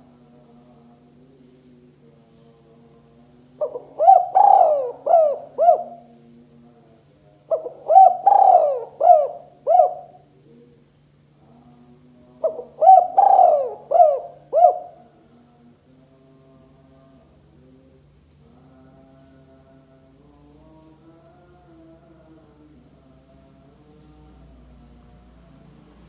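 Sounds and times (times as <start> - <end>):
faint steady hum: 0.0 - 26.0
dove cooing: 3.6 - 6.1, 7.5 - 10.2, 12.4 - 15.1.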